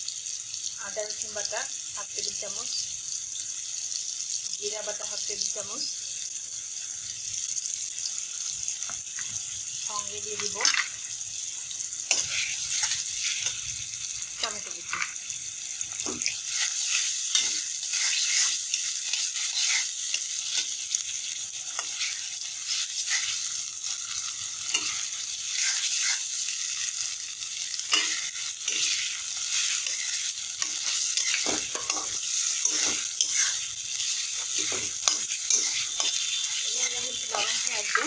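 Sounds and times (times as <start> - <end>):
onions sizzling in oil: 0.0 - 38.0
metal spatula scraping pan: 12.1 - 13.7, 16.0 - 20.6, 24.6 - 26.4, 27.9 - 38.0.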